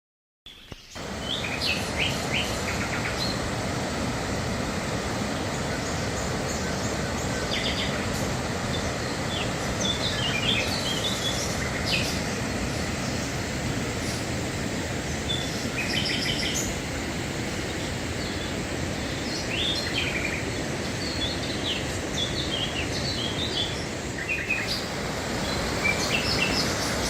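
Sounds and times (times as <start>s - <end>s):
birds chirping: 0.5s - 3.5s, 5.3s - 27.0s
water rushing over waterfall: 1.0s - 27.0s.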